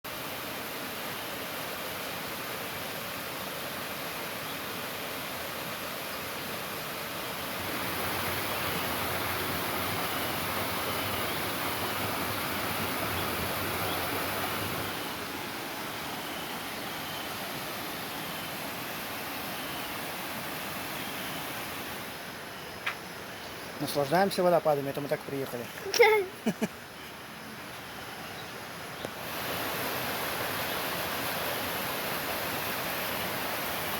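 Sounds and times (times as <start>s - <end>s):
waterfall rushing: 0.1s - 27.8s, 28.5s - 33.9s.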